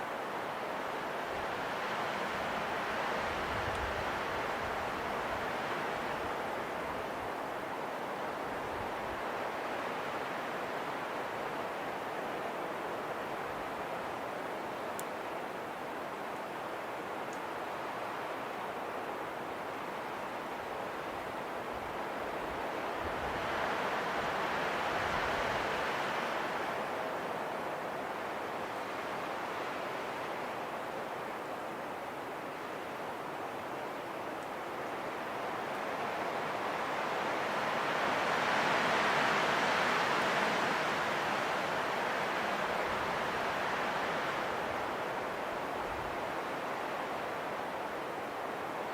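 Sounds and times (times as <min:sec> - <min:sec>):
rushing wind: 0:18.1 - 0:33.2, 0:34.6 - 0:48.9.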